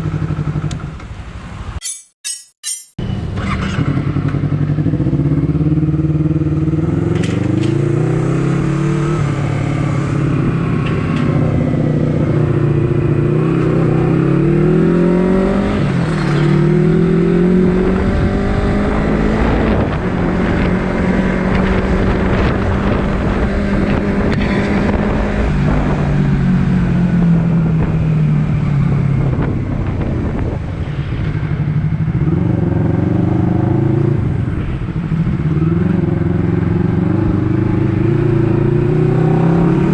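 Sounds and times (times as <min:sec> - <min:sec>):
motorcycle engine shifting gears: 0:03.0 - 0:30.3.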